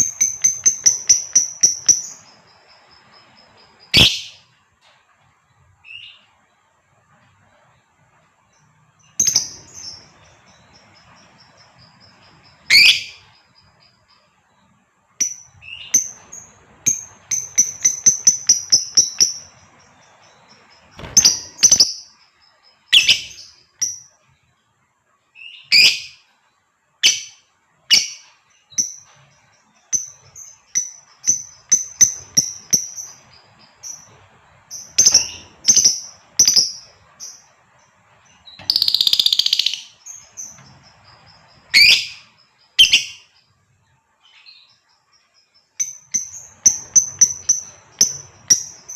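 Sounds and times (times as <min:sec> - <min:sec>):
lovebird high chirps: 0:00.0 - 0:04.5, 0:09.0 - 0:13.9, 0:15.2 - 0:24.1, 0:25.4 - 0:26.2, 0:27.0 - 0:37.5, 0:38.3 - 0:43.4, 0:45.7 - 0:48.9.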